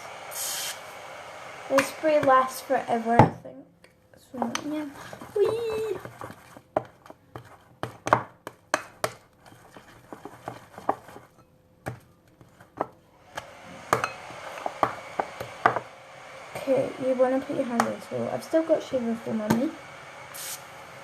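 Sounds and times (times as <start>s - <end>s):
steady hiss: 0.0s - 3.0s, 20.2s - 21.0s
utensil knocking against mixing bowl: 13.9s - 15.9s.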